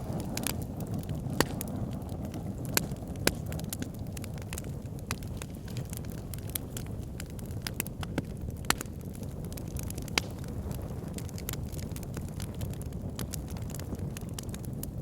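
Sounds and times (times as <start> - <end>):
fire crackling and popping: 0.0 - 15.0
fire rumbling: 0.0 - 15.0.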